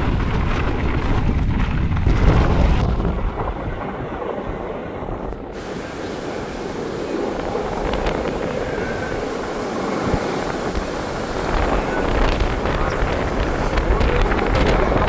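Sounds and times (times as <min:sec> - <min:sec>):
wind buffeting microphone: 0:00.0 - 0:15.0
high hiss: 0:05.6 - 0:15.0.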